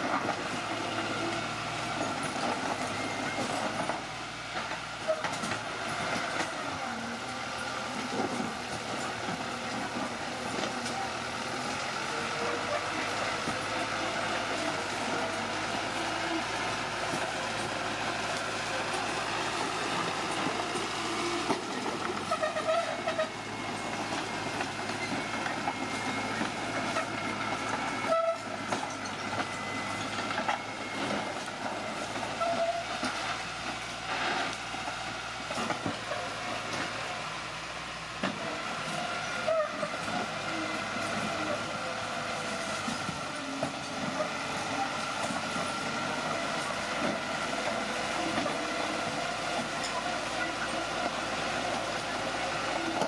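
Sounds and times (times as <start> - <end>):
bulldozer engine running: 0.0 - 53.0
crawler tracks clanking: 0.0 - 53.0
tracks squealing: 11.0 - 33.6.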